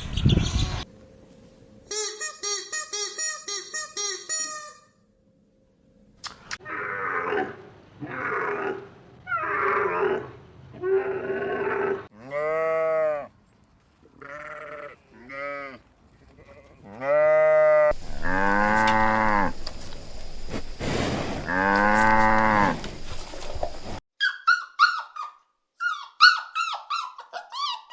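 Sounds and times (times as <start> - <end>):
livestock calling: 0.0 - 0.8, 16.4 - 20.6, 21.4 - 24.0
sheep bleating: 14.2 - 19.6, 21.5 - 22.9
cow mooing: 16.9 - 19.7, 21.4 - 23.1.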